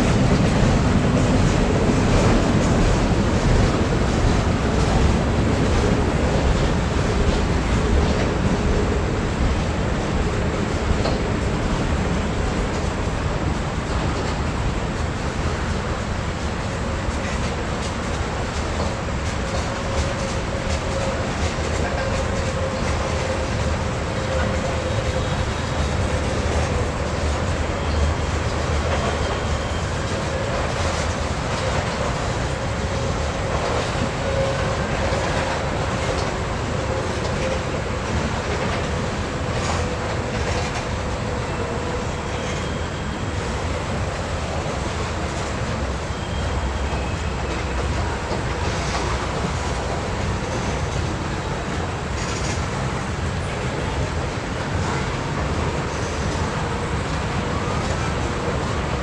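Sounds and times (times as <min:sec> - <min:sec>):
rail joint clicks: 0:00.0 - 0:59.0
train wheels rumbling on rail: 0:00.0 - 0:59.0
faint wheel squeal: 0:42.2 - 0:43.3, 0:46.1 - 0:47.8.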